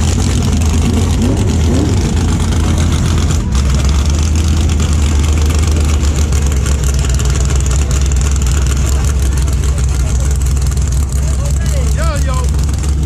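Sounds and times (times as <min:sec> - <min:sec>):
race car engine idling: 0:00.0 - 0:13.0.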